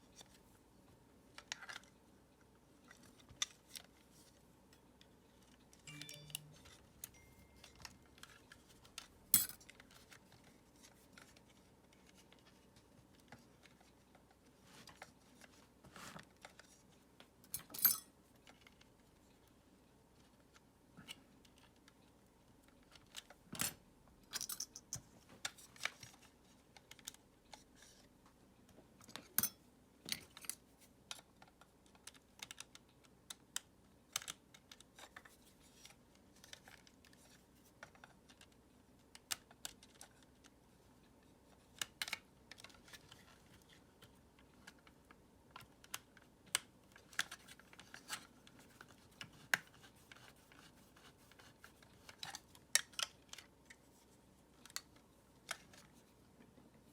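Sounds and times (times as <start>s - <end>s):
plastic parts clicking and tapping: 30.1s - 40.6s.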